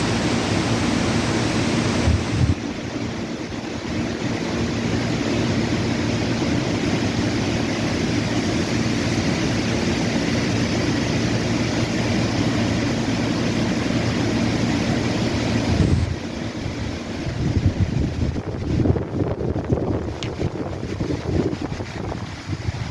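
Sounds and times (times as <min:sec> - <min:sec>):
wind buffeting microphone: 0:00.0 - 0:04.9, 0:15.3 - 0:22.9
wind blowing: 0:00.0 - 0:05.2, 0:15.1 - 0:22.9.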